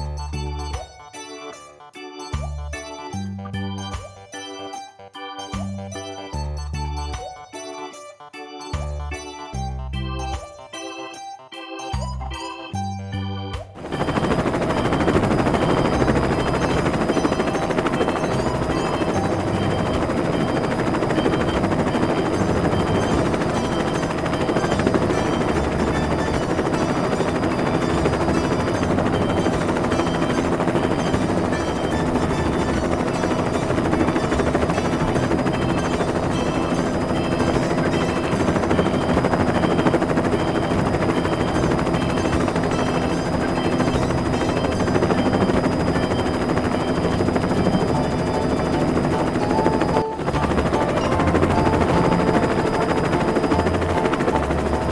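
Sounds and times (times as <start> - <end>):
steady electronic tones: 13.4 - 54.9
toy helicopter rotor chopping: 13.8 - 54.9.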